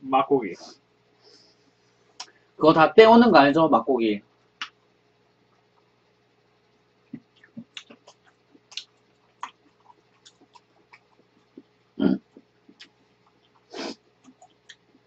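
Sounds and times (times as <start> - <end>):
mouth clicks and smacks: 2.2 - 2.4, 7.1 - 15.0.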